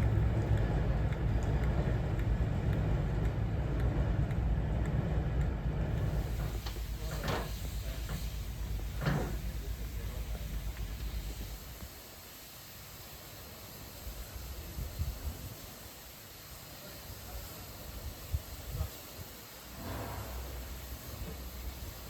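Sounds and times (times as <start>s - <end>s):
diesel locomotive engine rumbling: 0.0s - 22.0s.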